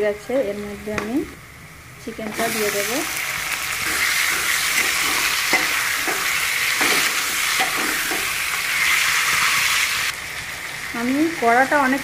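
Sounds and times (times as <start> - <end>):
chicken sizzling in hot oil: 2.3 - 12.0
metal spatula scraping pan: 3.8 - 9.6.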